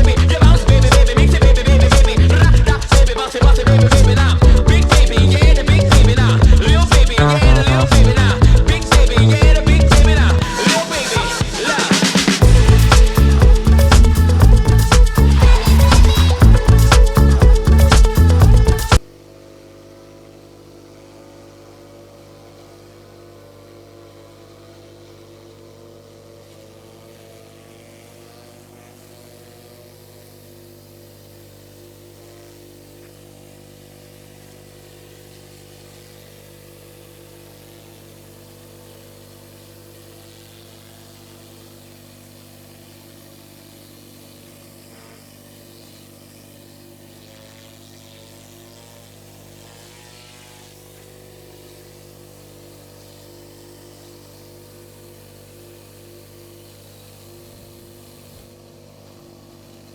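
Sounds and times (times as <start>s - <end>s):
pressure washer engine humming: 0.0s - 19.1s.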